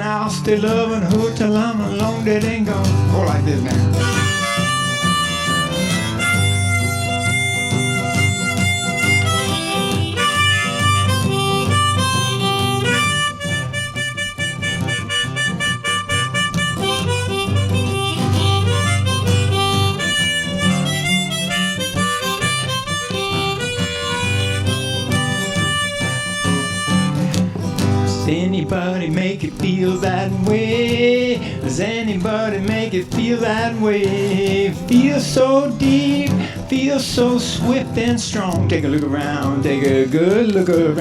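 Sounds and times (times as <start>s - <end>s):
strummed acoustic guitar: 0.0s - 41.0s
harmonica solo: 3.8s - 28.3s.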